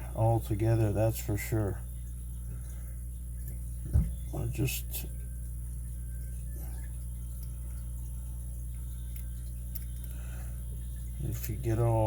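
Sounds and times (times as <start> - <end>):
low electrical hum: 0.0 - 12.0
faint light clicks: 8.7 - 10.2.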